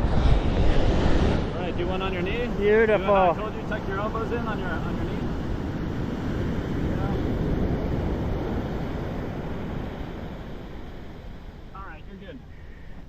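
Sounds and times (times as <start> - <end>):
surf washing up beach: 0.0 - 13.0
wind buffeting microphone: 0.0 - 13.0.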